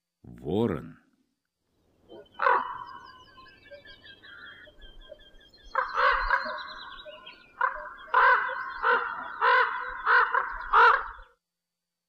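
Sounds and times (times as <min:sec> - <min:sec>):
bird giving harsh calls: 0:02.0 - 0:11.3.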